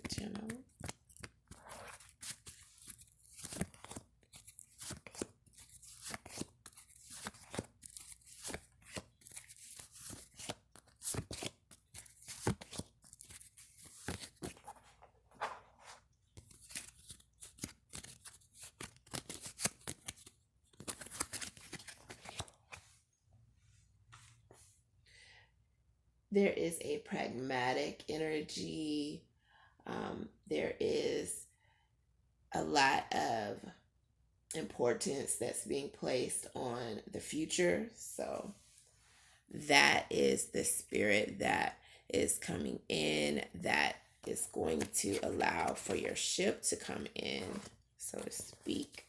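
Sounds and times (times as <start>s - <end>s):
cards being shuffled: 0.0s - 22.8s, 44.2s - 46.2s, 47.3s - 49.0s.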